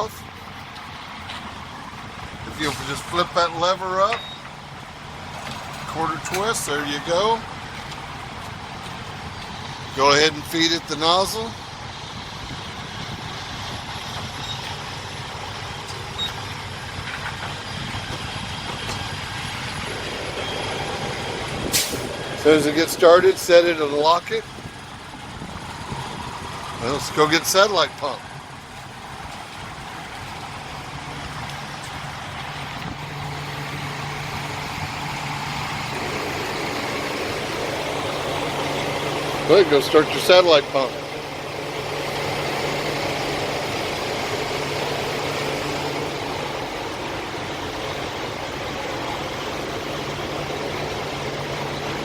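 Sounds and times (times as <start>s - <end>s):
diesel truck engine idling: 0.0s - 52.0s.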